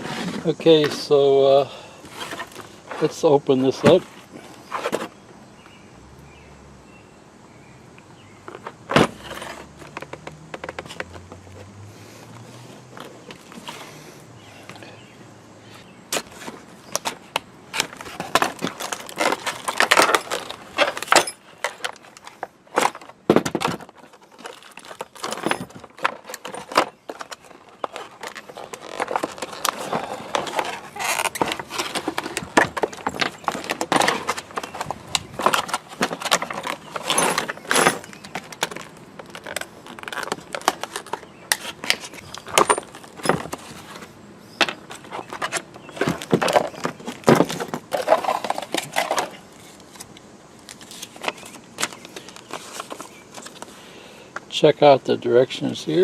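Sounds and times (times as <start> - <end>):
metal parts clinking and rattling: 17.0 - 43.9, 44.6 - 49.4.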